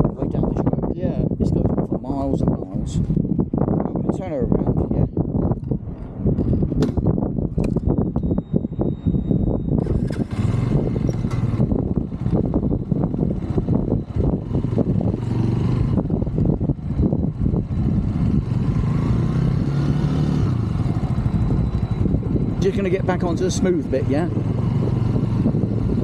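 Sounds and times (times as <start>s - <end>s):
wind buffeting: 0.0s - 26.0s
motorbike engine running: 8.2s - 26.0s.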